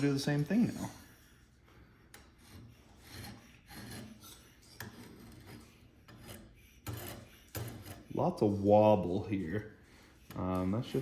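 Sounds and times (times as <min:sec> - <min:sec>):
scriber scraping steel blade: 0:02.2 - 0:08.2.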